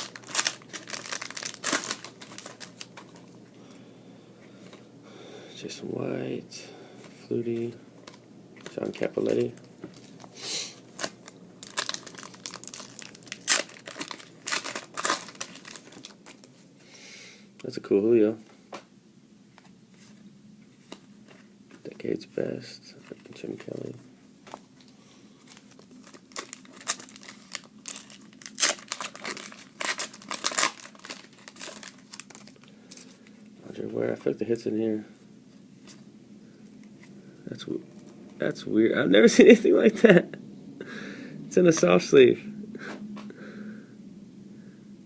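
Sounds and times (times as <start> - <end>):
foil wrapper crinkling: 0.0 - 3.3, 8.1 - 16.6, 25.4 - 33.4.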